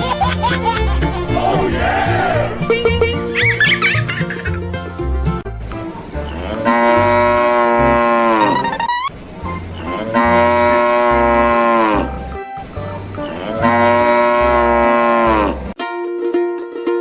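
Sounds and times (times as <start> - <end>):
music with bass beat: 2.6 - 3.7
cow mooing: 6.2 - 8.7, 9.8 - 12.2, 13.2 - 15.8.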